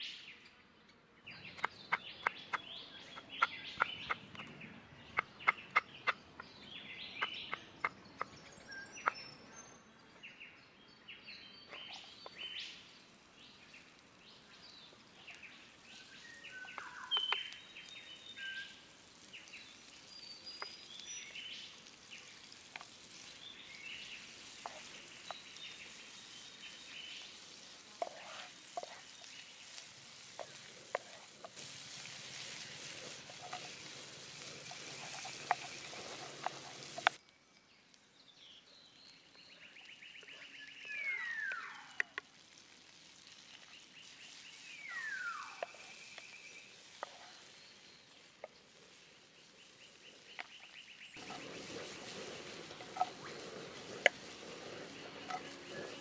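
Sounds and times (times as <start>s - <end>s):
onions sizzling in oil: 11.8s - 37.2s, 39.8s - 56.0s
bird whistling downward calls: 40.6s - 42.0s, 44.8s - 45.6s.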